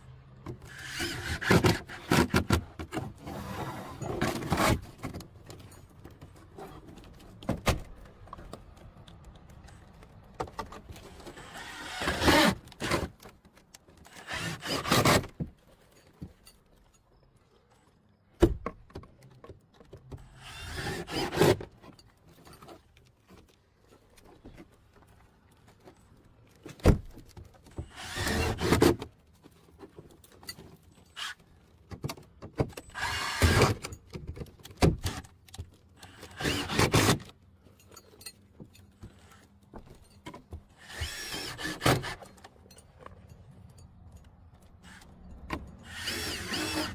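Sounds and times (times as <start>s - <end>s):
scraping bursts: 27.8s - 29.0s, 40.7s - 42.5s, 45.8s - 46.9s.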